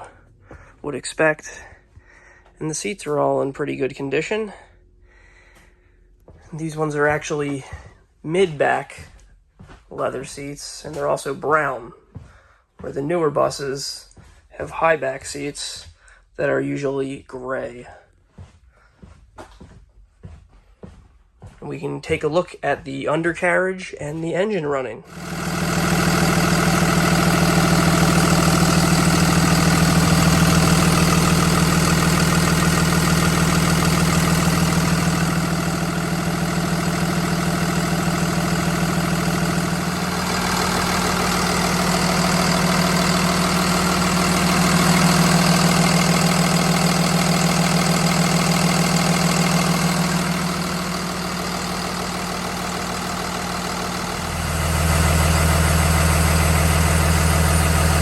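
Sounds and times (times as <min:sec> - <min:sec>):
bus diesel engine idling: 0:25.1 - 0:58.0
deeper hum: 0:25.1 - 0:58.0.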